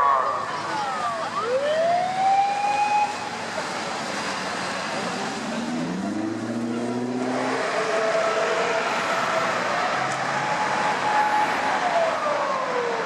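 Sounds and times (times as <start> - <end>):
siren wailing: 0.0 - 3.2, 7.8 - 13.0
traffic noise: 0.0 - 13.0.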